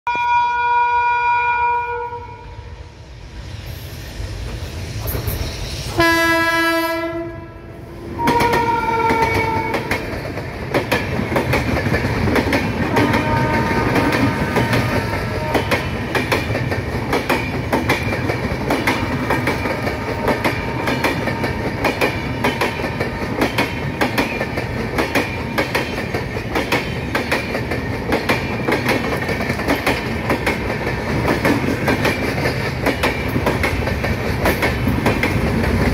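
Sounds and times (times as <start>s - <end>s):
train horn blasts: 0.1s - 2.9s, 6.0s - 9.9s, 12.9s - 16.0s, 19.8s - 20.8s
train wheels clattering on rails: 8.0s - 35.9s.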